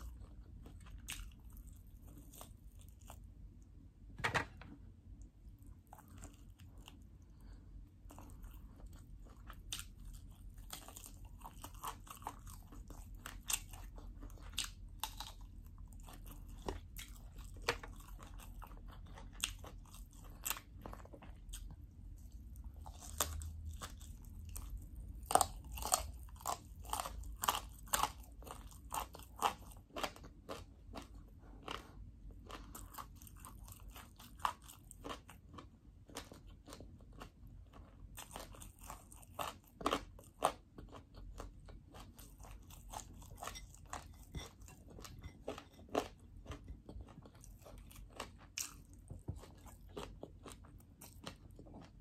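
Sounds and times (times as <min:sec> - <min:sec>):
person chewing crunchy food: 0:00.0 - 0:03.8, 0:04.6 - 0:52.0.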